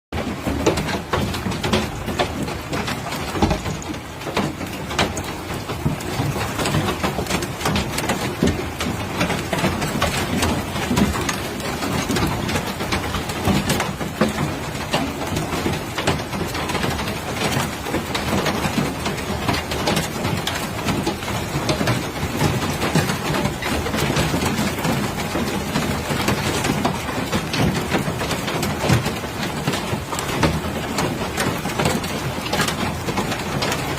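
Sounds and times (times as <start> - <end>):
heavy rain: 0.1 - 33.9
hailstones pelting down: 0.2 - 33.9.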